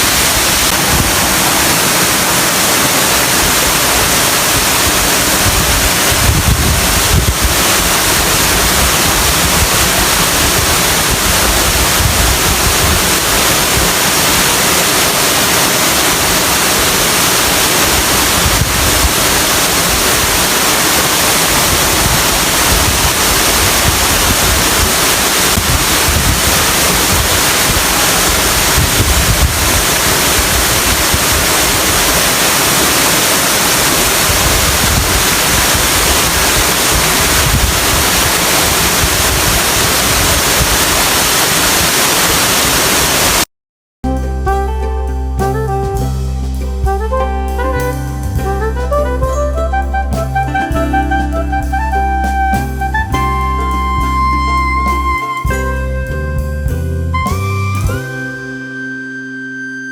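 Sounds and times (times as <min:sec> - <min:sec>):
waterfall rushing: 0:00.0 - 0:43.5
wind buffeting microphone: 0:04.6 - 0:14.0, 0:17.9 - 0:20.4, 0:21.5 - 0:32.1, 0:34.1 - 0:41.0.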